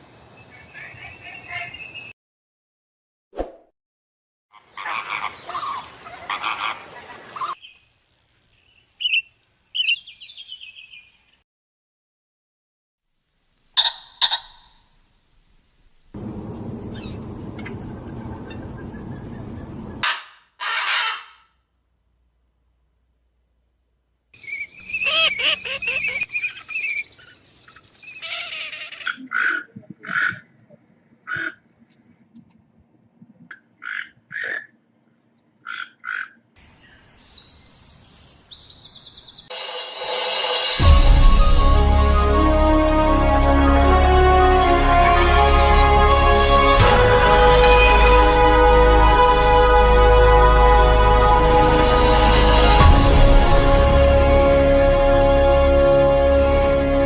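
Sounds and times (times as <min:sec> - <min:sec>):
harsh raspy bird calls: 0:04.5 - 0:07.6, 0:13.8 - 0:14.8, 0:16.8 - 0:21.6, 0:24.4 - 0:27.3, 0:28.1 - 0:30.5, 0:31.2 - 0:31.6, 0:33.5 - 0:34.8, 0:35.6 - 0:36.5
birds chirping: 0:08.5 - 0:11.4, 0:16.2 - 0:20.1, 0:24.4 - 0:30.6
short harsh bird calls: 0:13.8 - 0:14.8
bird warbling trill: 0:16.2 - 0:20.0, 0:24.4 - 0:27.0
bird chirps and falling notes: 0:43.0 - 0:48.5.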